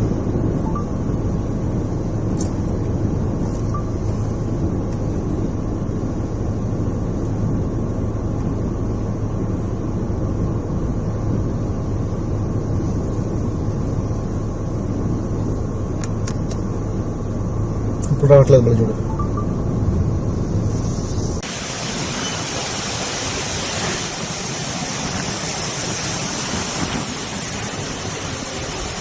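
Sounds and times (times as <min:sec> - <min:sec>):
strong wind roaring: 0:19.6 - 0:29.0.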